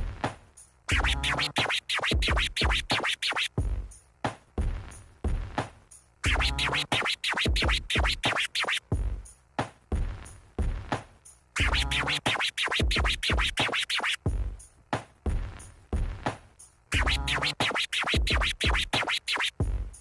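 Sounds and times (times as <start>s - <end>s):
drum machine beat: 0.0s - 20.0s
turntable record scratches: 0.9s - 3.6s, 6.2s - 8.9s, 11.6s - 14.3s, 16.9s - 19.6s.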